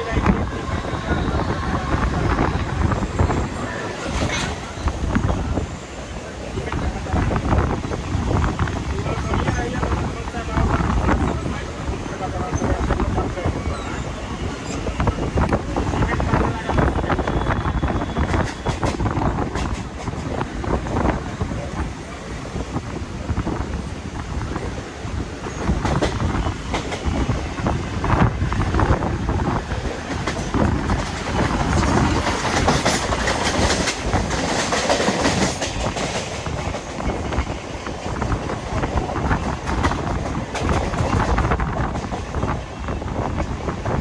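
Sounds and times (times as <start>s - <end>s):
train wheels clattering on rails: 6.5s - 44.0s.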